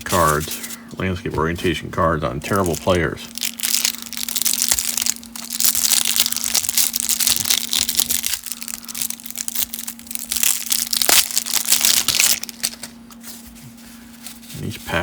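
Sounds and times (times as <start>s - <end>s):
cellophane wrapper crinkling: 2.4s - 13.5s.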